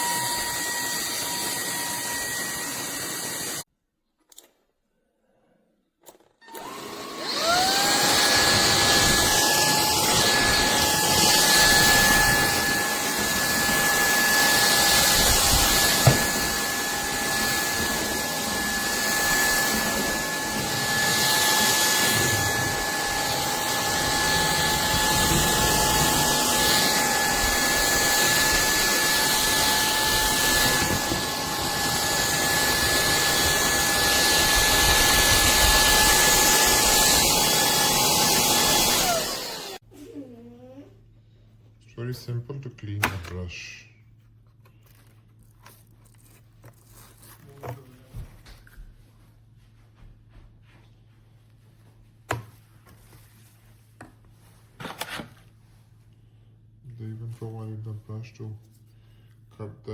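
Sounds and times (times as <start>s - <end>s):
stick vacuum motor whining: 0.0s - 3.6s, 6.1s - 39.8s.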